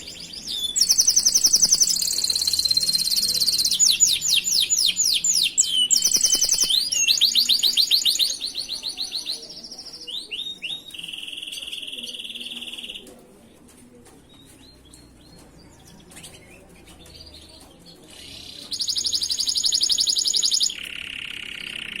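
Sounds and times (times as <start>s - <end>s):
canary singing trills: 0.0s - 13.1s, 14.4s - 22.0s.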